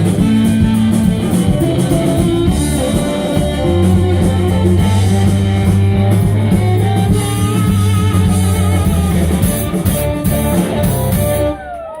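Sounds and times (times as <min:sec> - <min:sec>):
live blues band playing: 0:00.0 - 0:12.0.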